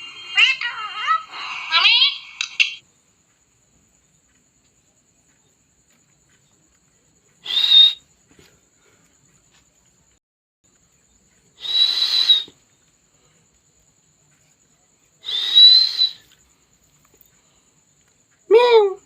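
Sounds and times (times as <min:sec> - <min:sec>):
parrot whistling calls: 0:07.4 - 0:08.0, 0:11.6 - 0:12.5, 0:15.2 - 0:16.3.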